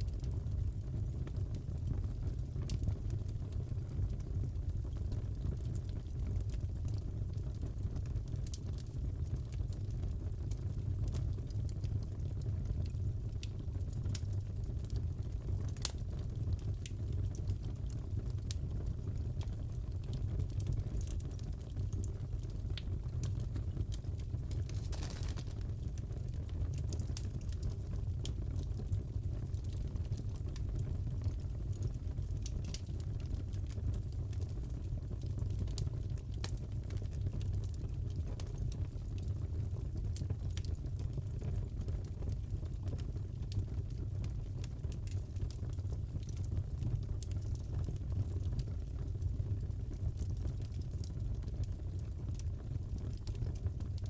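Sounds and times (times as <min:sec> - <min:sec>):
fire low rumble: 0:00.0 - 0:54.0
fire pops and snaps: 0:00.1 - 0:54.0.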